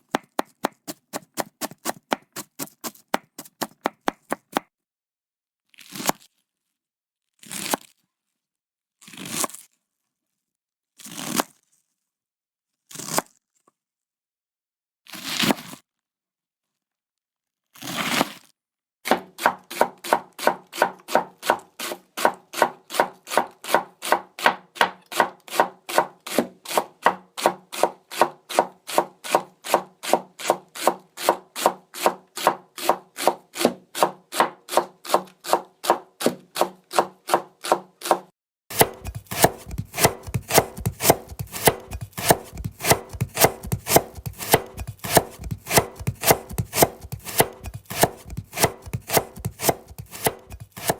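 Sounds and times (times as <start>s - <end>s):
knife chopping on cutting board: 0.0s - 4.6s, 19.1s - 50.9s.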